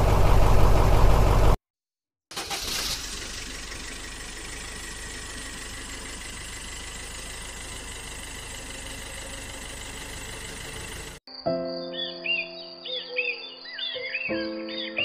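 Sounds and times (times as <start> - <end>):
motor running steadily: 3.4 - 11.2.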